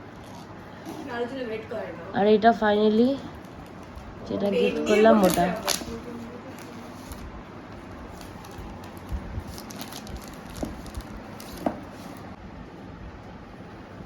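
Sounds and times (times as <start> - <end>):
faint rustling of packaging: 0.0 - 1.7, 3.0 - 12.4.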